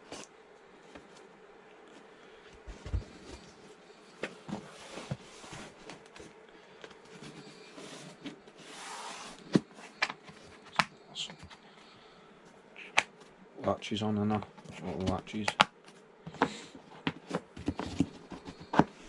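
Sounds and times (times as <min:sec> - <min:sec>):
faint steady hum: 0:00.0 - 0:19.0
rustling scrape: 0:04.3 - 0:06.4, 0:07.0 - 0:10.6.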